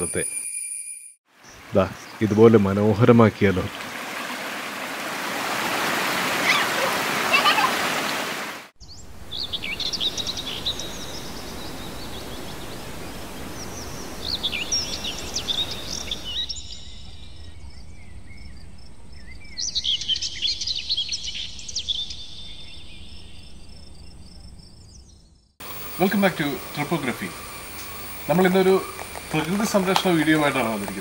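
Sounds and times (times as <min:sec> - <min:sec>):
birds chirping and calling: 0:08.8 - 0:18.1, 0:24.9 - 0:31.0
steady noisy hiss: 0:09.0 - 0:16.4, 0:25.6 - 0:31.0.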